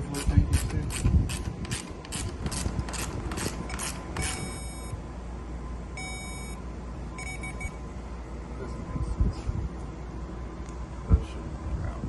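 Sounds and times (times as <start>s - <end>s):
low steady hum: 0.0s - 12.0s
ratchet wrench clicking: 0.2s - 4.5s.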